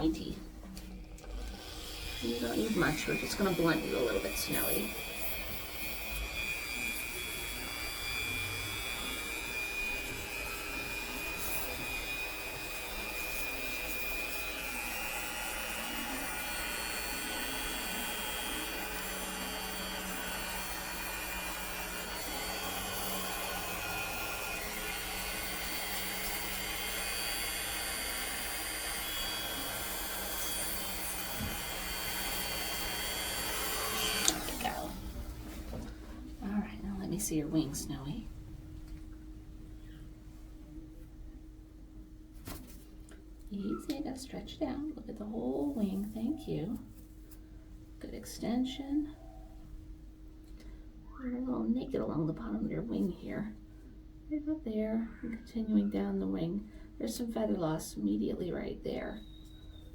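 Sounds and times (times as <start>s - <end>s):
rotary nail grinder whining: 1.2s - 35.2s.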